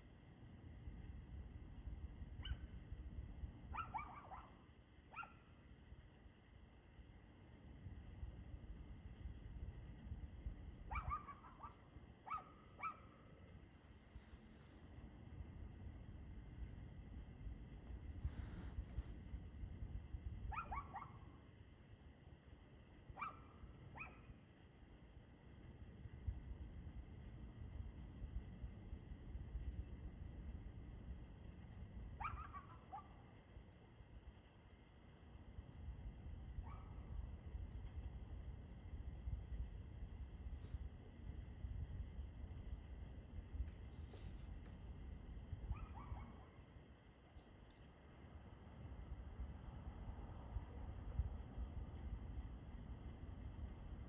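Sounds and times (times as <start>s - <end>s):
dog barking faintly: 3.7s - 5.6s, 10.8s - 13.5s, 20.5s - 21.4s, 23.1s - 24.4s, 32.2s - 33.4s, 36.6s - 37.4s, 45.6s - 47.8s.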